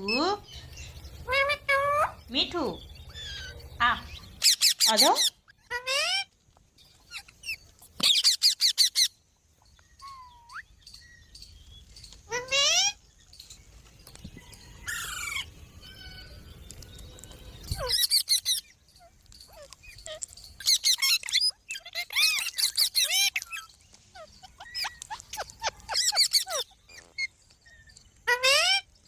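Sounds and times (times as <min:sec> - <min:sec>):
parrot calling: 0:03.1 - 0:06.3, 0:07.0 - 0:09.2, 0:12.3 - 0:13.0, 0:17.7 - 0:28.9.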